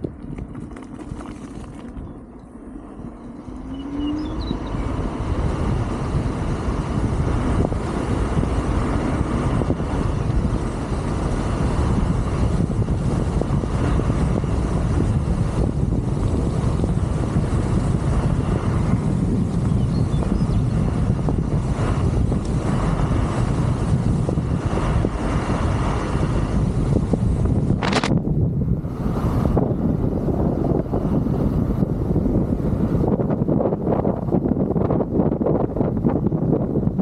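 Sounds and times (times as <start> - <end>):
rising whine: 0.0 - 16.0
road rumble: 0.0 - 37.0
wind rushing over microphone: 0.0 - 37.0.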